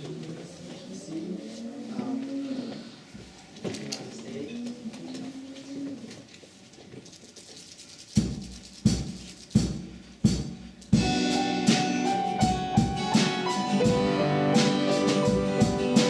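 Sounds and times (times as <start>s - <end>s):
band playing a steady beat: 8.2s - 16.0s
drum hits with ringing tails: 9.7s - 16.0s.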